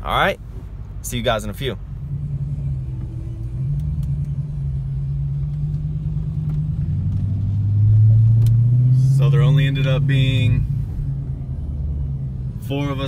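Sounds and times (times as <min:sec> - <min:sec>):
car exhaust drone from cabin: 0:00.0 - 0:13.0.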